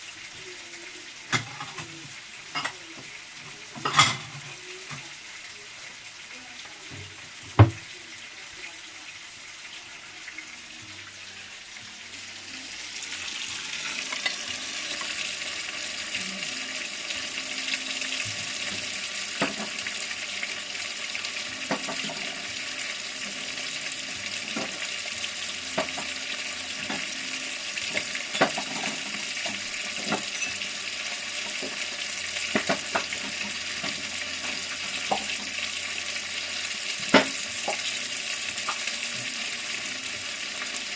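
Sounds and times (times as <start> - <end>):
food sizzling in hot oil: 0.0 - 40.9
utensil against pan: 12.6 - 39.8.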